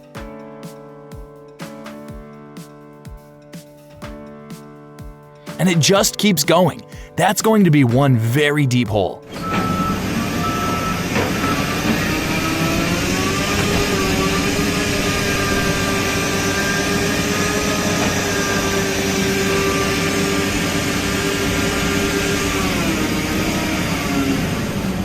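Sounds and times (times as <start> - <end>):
heavy machine engine under load: 9.4 - 22.4.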